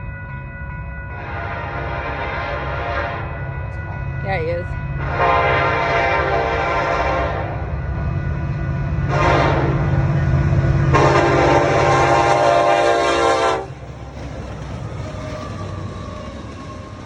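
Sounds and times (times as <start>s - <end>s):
locomotive and train rumble: 0.0s - 17.0s
locomotive air horn blasts: 1.2s - 3.4s, 5.0s - 7.7s, 9.0s - 10.0s, 10.8s - 13.8s.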